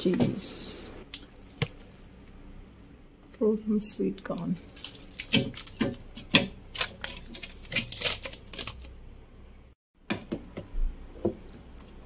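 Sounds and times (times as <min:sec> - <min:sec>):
frozen food packets being handled: 0:01.1 - 0:02.8, 0:04.3 - 0:09.0.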